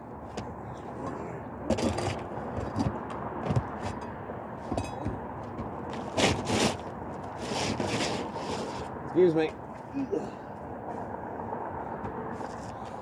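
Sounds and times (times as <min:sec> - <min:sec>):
steady background noise: 0:00.0 - 0:13.0
pry bar scraping and cracking shingles: 0:04.7 - 0:08.9.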